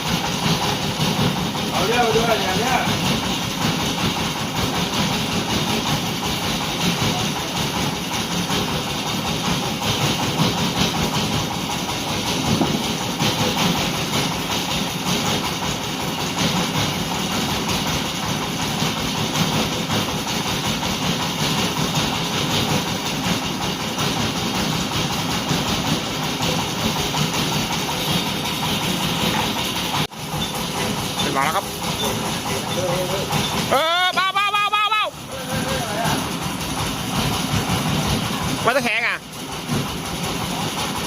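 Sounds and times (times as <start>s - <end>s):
engine running steadily: 0.0s - 41.0s.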